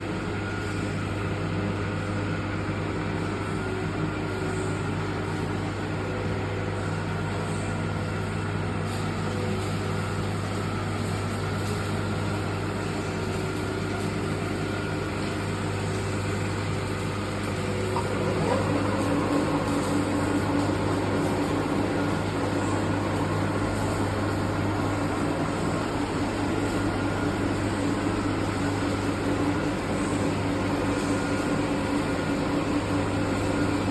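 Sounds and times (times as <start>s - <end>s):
metal lathe humming: 15.2s - 33.9s.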